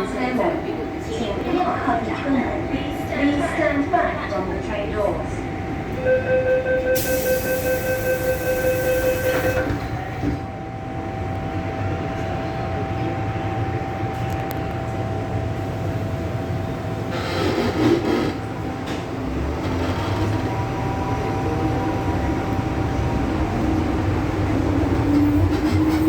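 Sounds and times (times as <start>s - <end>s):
door warning beeping: 6.0s - 9.9s
train doors hissing: 7.0s - 10.4s, 17.1s - 20.5s
train running rumble: 7.0s - 26.0s.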